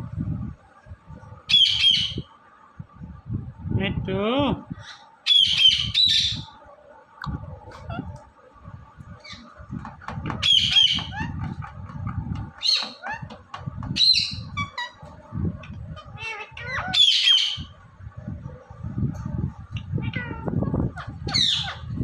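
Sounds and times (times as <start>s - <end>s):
parakeet squawking: 1.5s - 2.3s, 5.3s - 6.5s, 9.2s - 9.5s, 10.3s - 17.7s, 19.8s - 22.0s.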